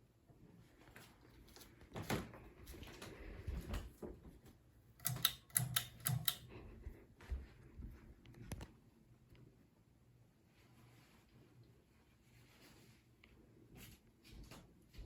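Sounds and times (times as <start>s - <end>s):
sharp ringing clicks: 5.0s - 6.5s.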